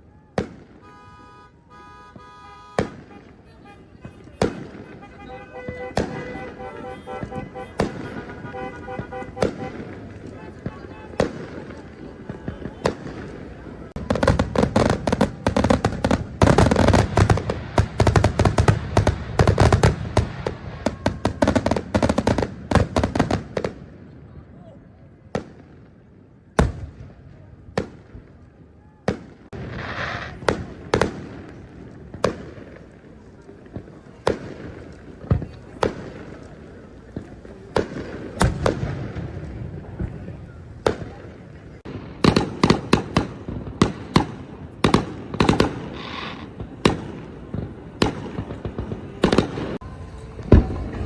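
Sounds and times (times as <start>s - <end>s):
fireworks cracking and banging: 0.0s - 51.0s.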